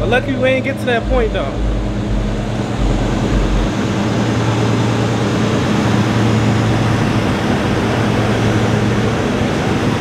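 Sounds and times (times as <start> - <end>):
car engine idling: 0.0 - 9.6.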